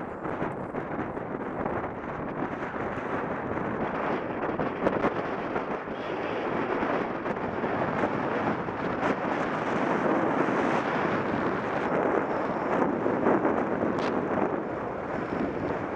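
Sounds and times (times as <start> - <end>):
wind buffeting microphone: 0.0 - 15.9
sharp cracks: 13.9 - 14.3.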